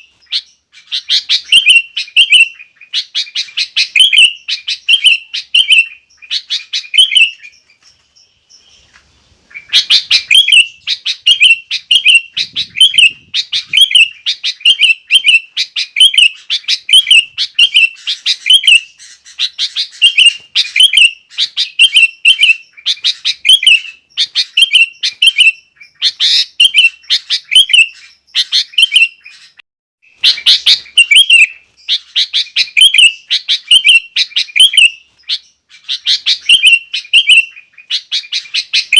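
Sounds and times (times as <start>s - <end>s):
bulbul singing whistled phrases: 0.0s - 38.9s.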